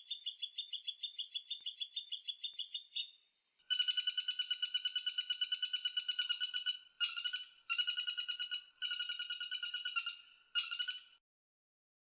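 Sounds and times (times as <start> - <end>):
woodpecker rattling call: 3.7 - 11.2.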